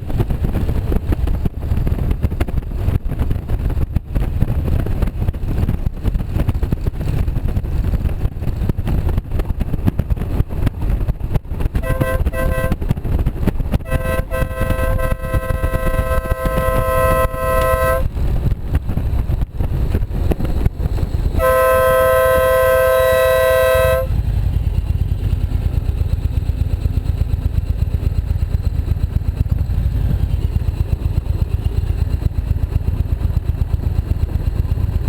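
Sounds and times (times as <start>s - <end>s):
wind buffeting microphone: 0.0s - 26.0s
motorcycle engine rumble: 0.0s - 35.0s
vehicle horn beeping: 11.8s - 12.8s, 13.9s - 18.1s, 21.4s - 24.1s.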